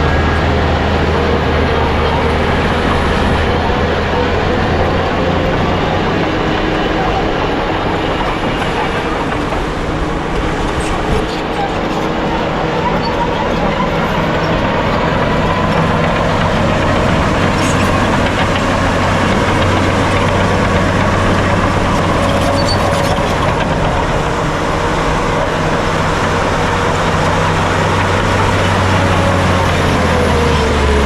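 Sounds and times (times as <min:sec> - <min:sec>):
diesel engine drone: 0:00.0 - 0:31.0
machinery whine: 0:00.0 - 0:31.0.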